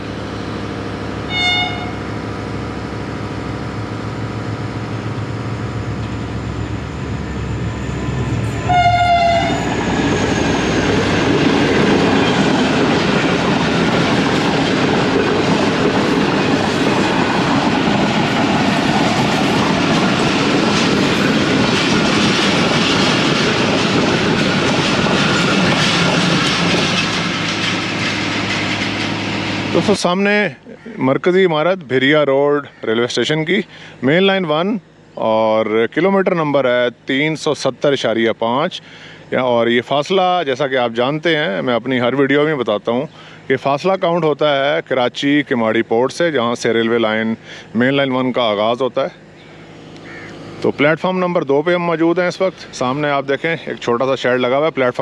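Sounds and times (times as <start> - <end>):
diesel locomotive engine running: 0.0 - 55.0
train horn: 1.3 - 2.1, 8.6 - 9.8
train wheels clattering: 9.6 - 30.0.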